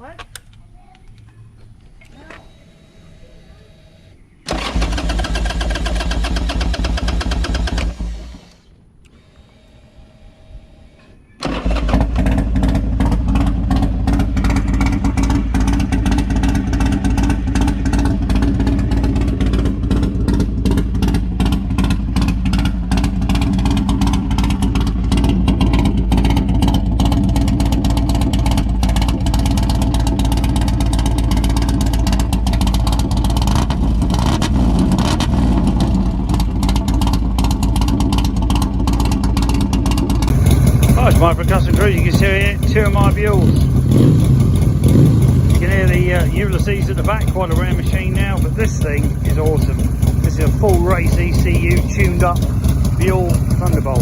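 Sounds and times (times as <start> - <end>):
motorcycle engine running: 2.2 - 8.6, 11.4 - 54.0.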